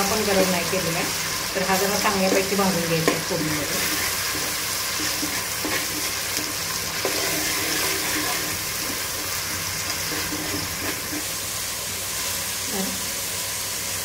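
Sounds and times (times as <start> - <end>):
paste sizzling in oil: 0.0 - 14.0
metal ladle scraping pot: 3.8 - 9.0, 9.9 - 11.3.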